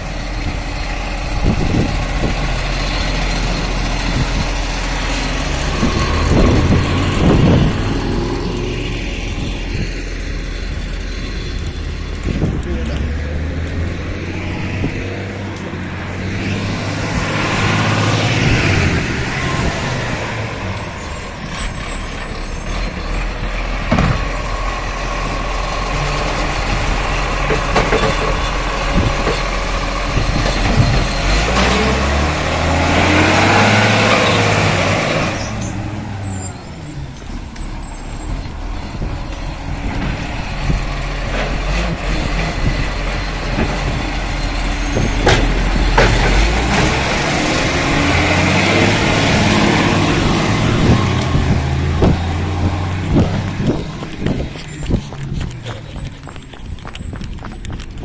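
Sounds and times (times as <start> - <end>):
garbage truck diesel engine running: 0.0 - 12.6, 18.1 - 32.2.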